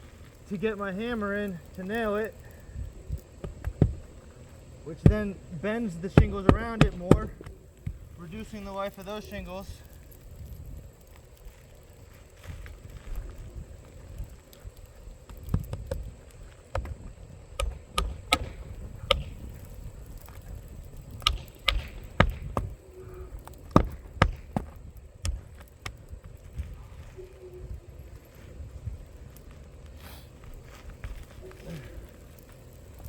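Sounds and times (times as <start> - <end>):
taps and knocks on shingle roof: 3.4 - 4.2, 6.1 - 8.1, 15.2 - 20.4, 21.1 - 22.8, 23.4 - 26.4.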